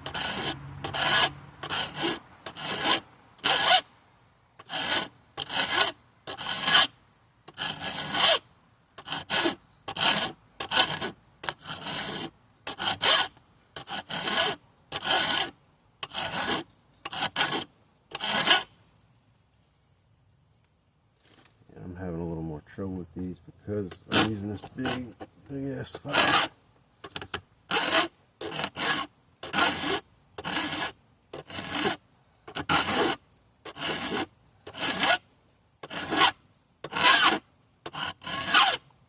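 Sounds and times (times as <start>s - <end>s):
hand file rasping on chain: 0.0s - 3.8s, 4.6s - 6.9s, 7.5s - 8.4s, 9.0s - 18.7s, 24.0s - 26.5s, 27.1s - 35.2s, 35.8s - 38.8s.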